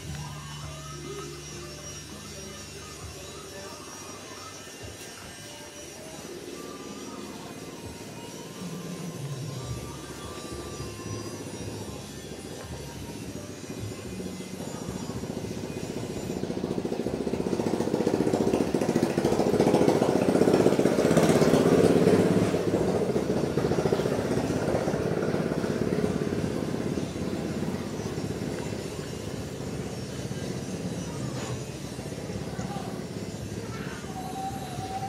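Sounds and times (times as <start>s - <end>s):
small engine running: 0.0s - 35.0s.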